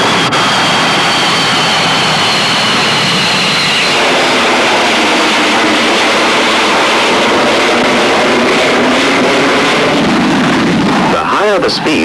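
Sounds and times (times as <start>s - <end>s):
jet engine rushing hiss: 0.0s - 12.0s.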